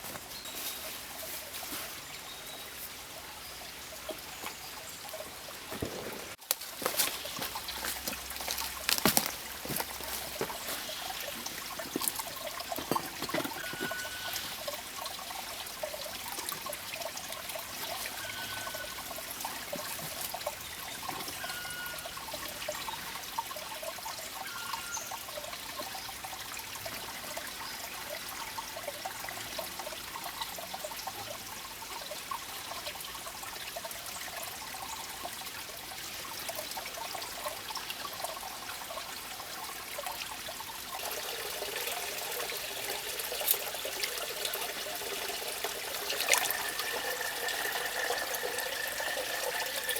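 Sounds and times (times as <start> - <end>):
water trickling and gurgling: 0.0 - 49.9.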